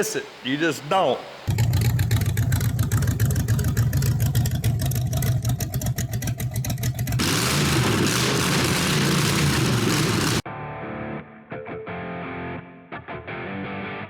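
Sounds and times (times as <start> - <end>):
engine and road noise: 1.4 - 10.4
pulsing engine exhaust: 1.5 - 10.4.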